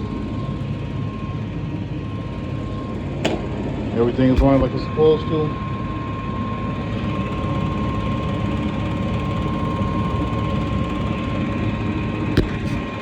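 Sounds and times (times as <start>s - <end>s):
thin steady whine: 0.0s - 13.0s
gas furnace rumbling: 3.6s - 5.5s
short knock: 12.4s - 12.9s.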